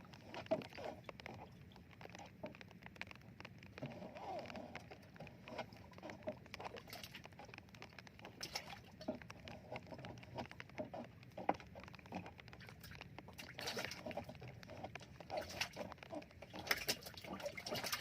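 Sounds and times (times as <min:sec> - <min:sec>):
small taps and knocks: 0:04.7 - 0:17.3.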